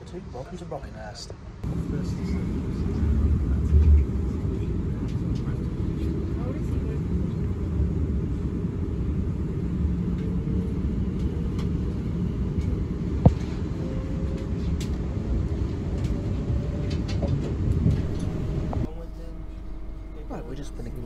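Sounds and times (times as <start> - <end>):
train wheels rumbling on track: 1.6 - 21.0.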